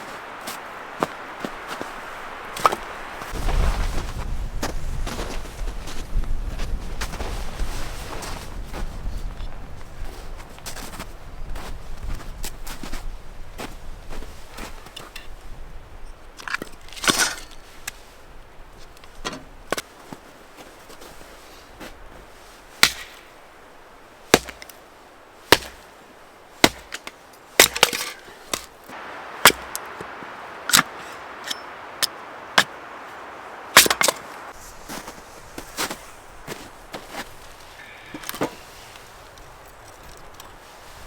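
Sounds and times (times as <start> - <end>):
faint steady hiss: 0.0 - 41.0
wood cracking and knocking: 26.6 - 28.7, 33.8 - 34.4.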